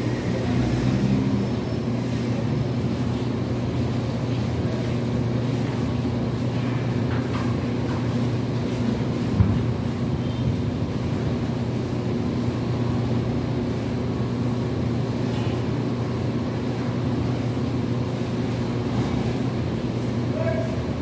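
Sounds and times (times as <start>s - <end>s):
engine drone: 0.0s - 6.9s.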